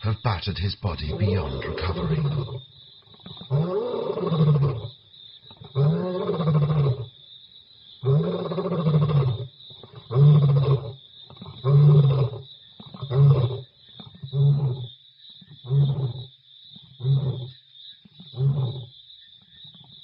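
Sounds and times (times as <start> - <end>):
lion roaring: 1.1 - 2.6.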